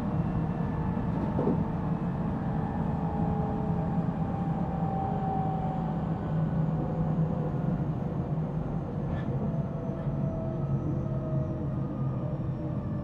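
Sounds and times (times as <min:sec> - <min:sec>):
train wheels rumbling on rails: 0:01.0 - 0:01.8.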